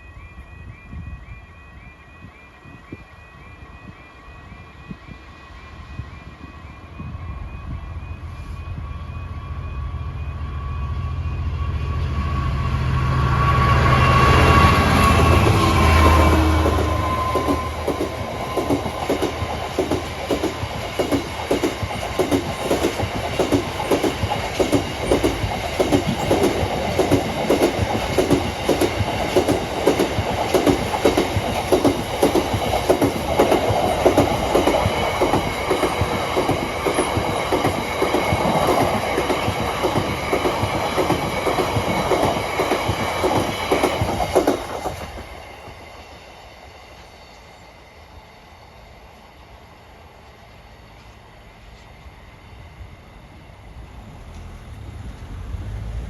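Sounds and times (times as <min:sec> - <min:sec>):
train wheels clattering over rail joints: 0:15.1 - 0:45.3.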